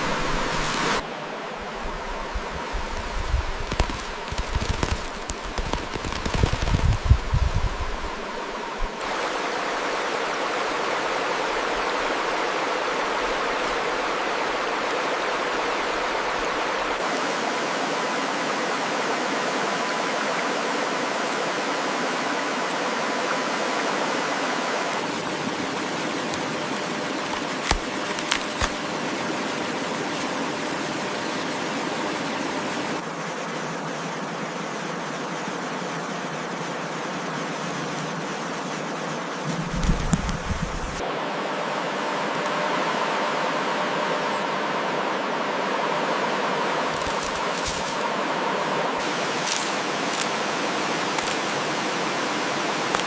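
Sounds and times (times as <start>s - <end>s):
flowing water rushing: 0.0s - 33.0s, 44.8s - 53.0s.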